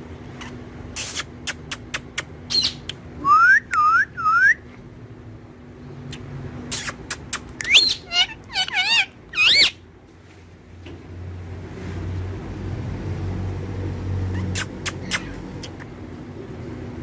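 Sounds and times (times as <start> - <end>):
parrot whistled calls: 2.5 - 4.6, 6.1 - 9.8.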